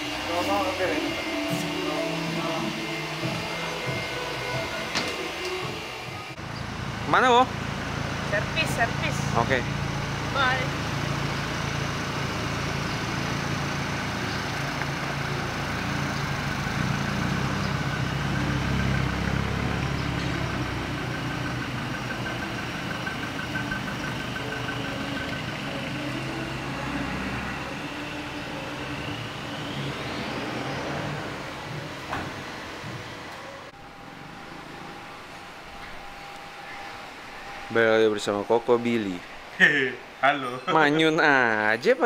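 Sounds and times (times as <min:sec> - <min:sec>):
vehicle engine running: 0:00.0 - 0:40.2
short rising whine: 0:17.0 - 0:41.6.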